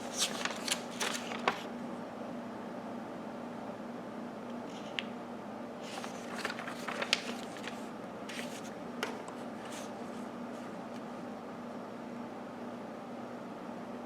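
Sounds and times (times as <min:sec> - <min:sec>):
faint steady hum: 0:00.0 - 0:14.0
rustling: 0:05.8 - 0:08.7.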